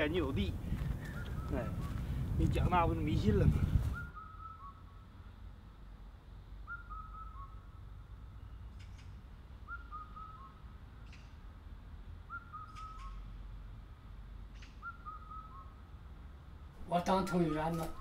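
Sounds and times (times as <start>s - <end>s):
bird whistling descending phrase: 3.9s - 5.0s, 6.7s - 7.7s, 9.6s - 10.6s, 14.8s - 15.8s.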